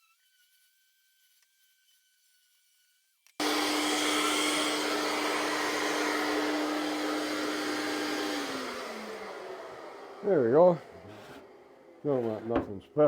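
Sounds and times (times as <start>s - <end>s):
shop vacuum running: 3.4s - 13.0s.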